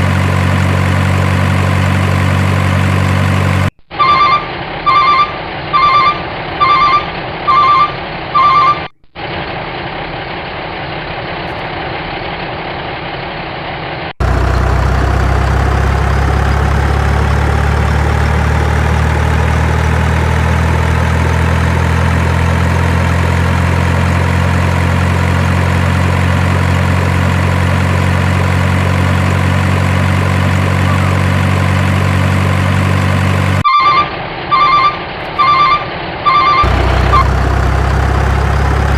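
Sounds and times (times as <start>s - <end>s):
heavy truck engine running: 0.0s - 38.9s
truck reversing alarm beeping: 3.9s - 8.9s, 29.4s - 37.6s.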